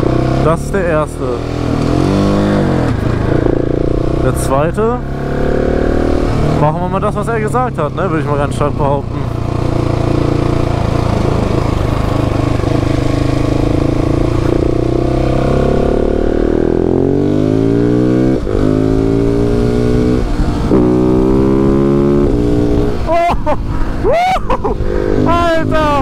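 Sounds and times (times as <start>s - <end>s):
motorcycle engine accelerating: 0.0s - 26.0s
wind rush: 18.4s - 26.0s.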